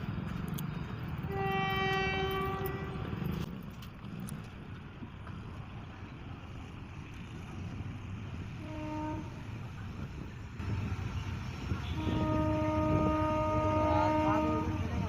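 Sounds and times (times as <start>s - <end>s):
train rumble: 0.0s - 15.0s
train horn: 1.3s - 3.1s, 8.6s - 9.5s, 11.7s - 15.0s.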